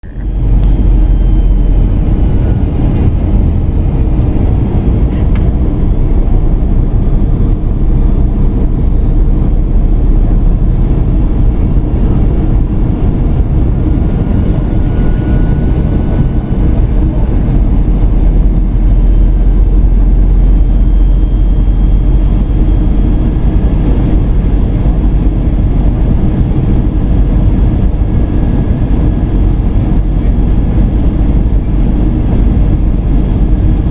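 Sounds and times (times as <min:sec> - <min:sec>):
aircraft cabin engine drone: 0:00.0 - 0:33.9
faint high whining: 0:00.1 - 0:08.9, 0:09.9 - 0:26.0.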